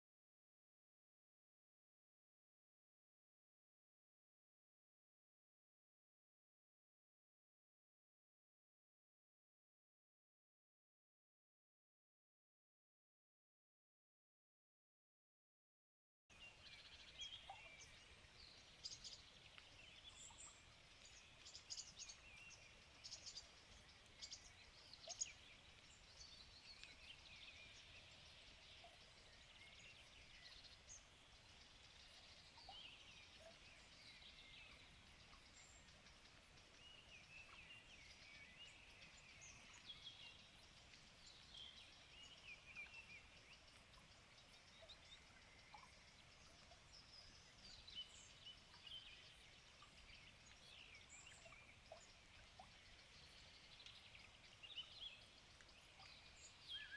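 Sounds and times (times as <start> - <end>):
small birds chirping: 16.3 - 56.9.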